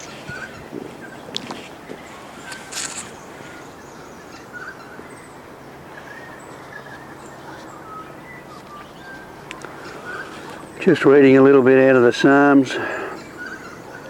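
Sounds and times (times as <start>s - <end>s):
rustling: 0.0s - 3.6s
faint bird calls: 0.0s - 14.0s
outdoor background noise: 0.0s - 14.0s.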